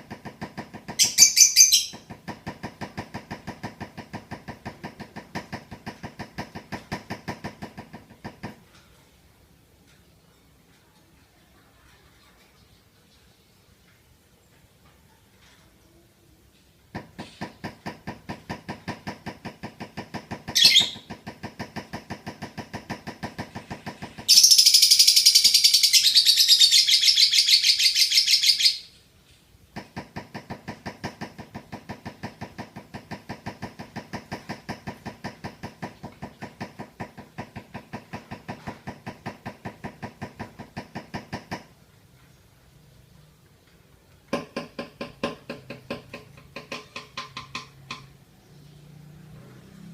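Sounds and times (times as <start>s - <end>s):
lovebird chattering song: 1.0s - 2.0s, 20.5s - 21.1s, 24.3s - 28.9s
loud shrill bird chatter: 20.6s - 21.0s.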